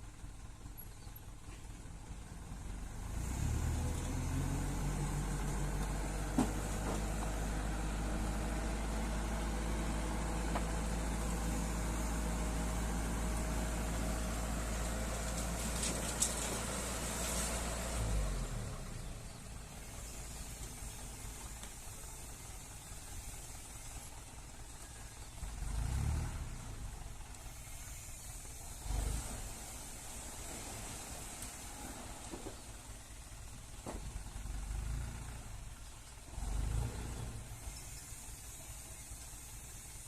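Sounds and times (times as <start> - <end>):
diesel truck engine revving: 2.8 - 21.4, 25.4 - 32.3, 36.2 - 38.8.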